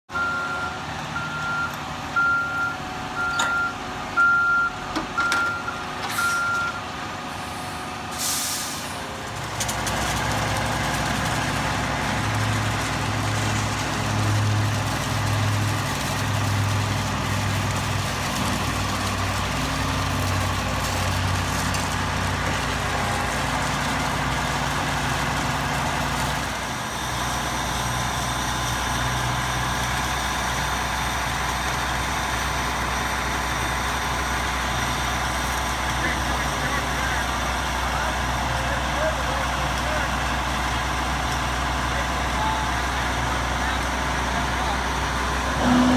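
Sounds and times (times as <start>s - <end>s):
truck backup alarm beeping: 0.1s - 8.8s, 45.5s - 45.9s
diesel truck engine running: 0.1s - 45.9s
air brake hiss: 7.3s - 9.1s.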